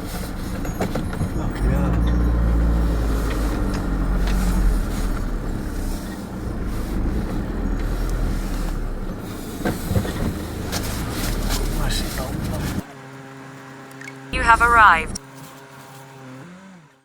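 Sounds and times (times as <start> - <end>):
van engine running: 0.0 - 12.8
road noise: 0.0 - 15.8.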